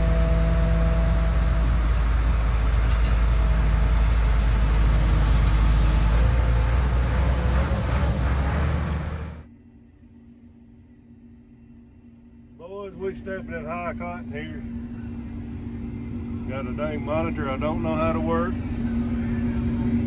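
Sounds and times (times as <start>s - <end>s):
vehicle engine running: 0.0s - 9.5s, 13.0s - 20.0s.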